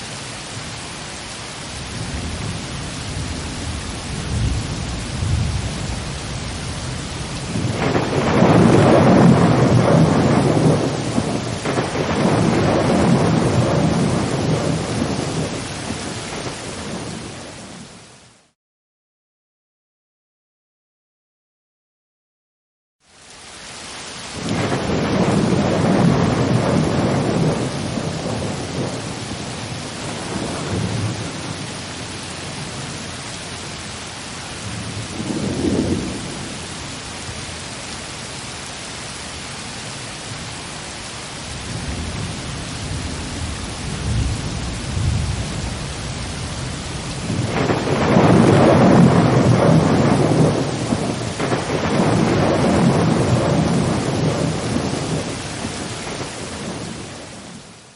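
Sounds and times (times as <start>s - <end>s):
steady rain: 0.0s - 18.6s, 23.0s - 57.9s
low rolling thunder: 1.9s - 17.8s, 24.4s - 33.3s, 34.6s - 36.8s, 41.6s - 57.6s.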